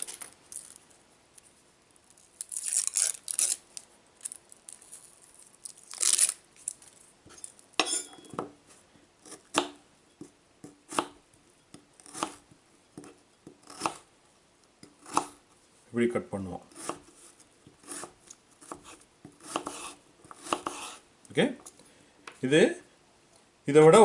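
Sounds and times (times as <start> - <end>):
onion skin rustling and tearing: 2.1 - 7.6
knife cutting onion on board: 9.2 - 14.1, 14.8 - 15.4, 16.7 - 21.0.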